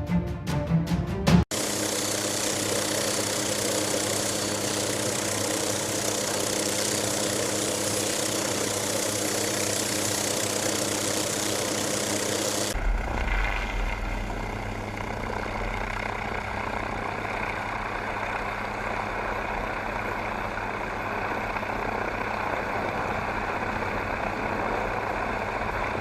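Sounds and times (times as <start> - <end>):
helicopter engine and rotor noise: 1.5 - 26.0
constant low hum: 12.7 - 26.0.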